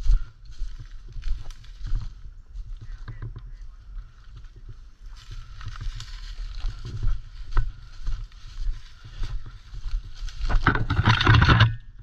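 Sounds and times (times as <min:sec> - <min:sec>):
scattered knocks and rustles: 0:09.8 - 0:11.8.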